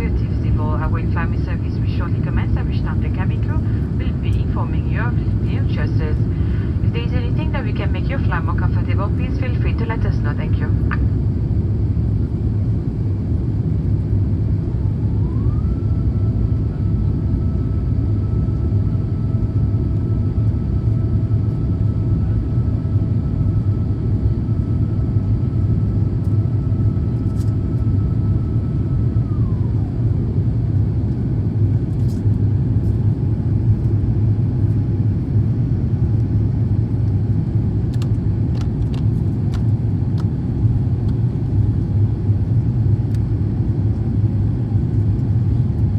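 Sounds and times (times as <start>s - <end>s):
faint whine: 0.0s - 12.7s
airplane cabin engine rumble: 0.0s - 45.9s.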